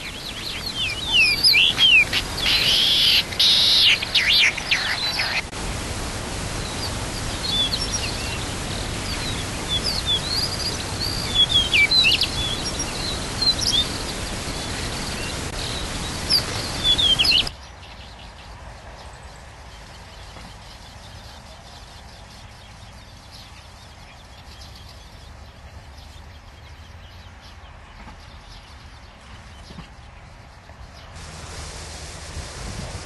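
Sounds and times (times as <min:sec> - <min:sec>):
bird chirps: 0:00.0 - 0:05.5, 0:06.7 - 0:18.2
outdoor noise hiss: 0:00.0 - 0:33.0.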